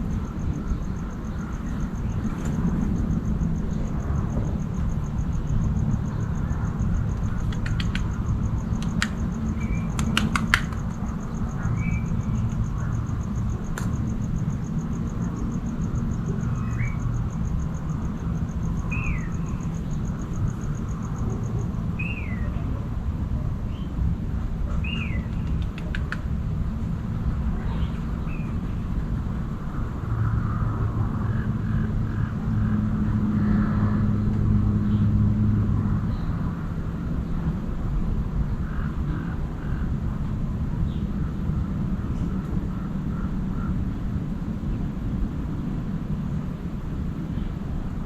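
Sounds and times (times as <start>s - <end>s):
steady low rumble: 0.0s - 48.0s
sharp clicks: 7.1s - 11.1s, 13.7s - 14.0s, 25.3s - 26.2s.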